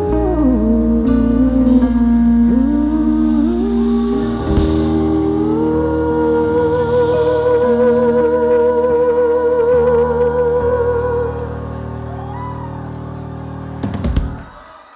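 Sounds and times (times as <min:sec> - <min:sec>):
long note with vibrato: 0:00.0 - 0:12.5.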